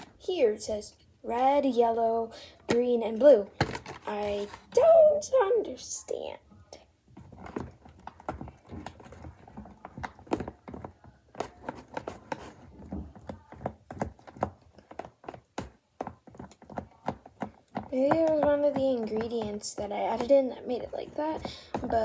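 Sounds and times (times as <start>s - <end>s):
spoon stirring slime: 7.2s - 22.0s.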